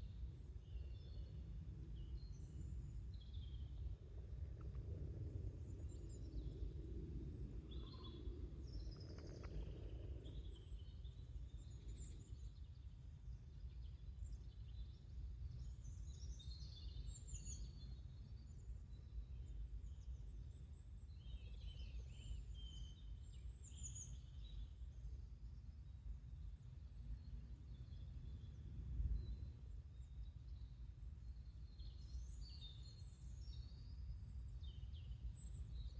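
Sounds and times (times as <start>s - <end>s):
steady low rumble: 0.0s - 13.7s
soft low murmur: 0.0s - 14.9s.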